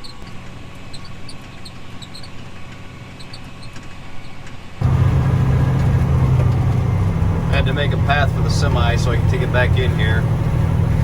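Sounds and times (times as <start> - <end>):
faint short high squeaks: 0.0 - 4.7
heavy vehicle engine humming: 0.0 - 11.0.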